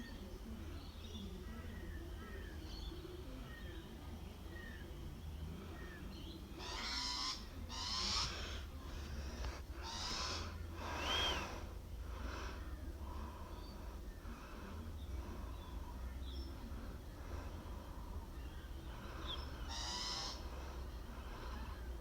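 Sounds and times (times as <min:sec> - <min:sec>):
bird rasping call: 0:06.6 - 0:08.6, 0:09.8 - 0:11.2, 0:19.2 - 0:20.6.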